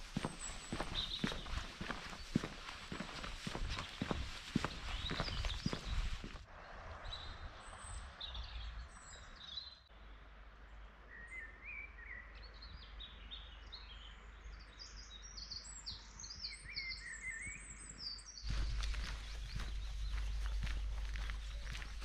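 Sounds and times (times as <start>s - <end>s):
footsteps: 0.0s - 6.4s, 18.4s - 22.0s
songbirds singing: 0.0s - 22.0s
wind on microphone: 3.4s - 9.0s.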